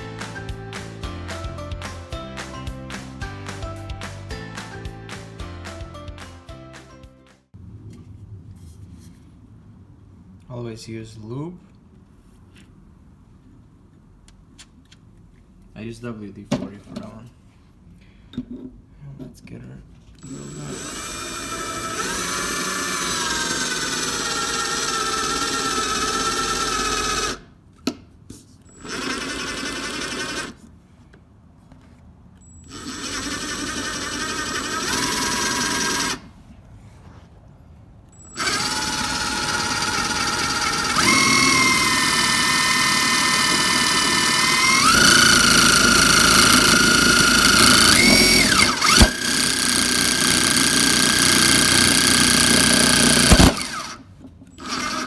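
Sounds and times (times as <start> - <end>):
electric drill boring through metal: 20.2 - 27.4, 28.7 - 30.6, 32.5 - 36.2, 38.2 - 54.0, 54.6 - 55.0.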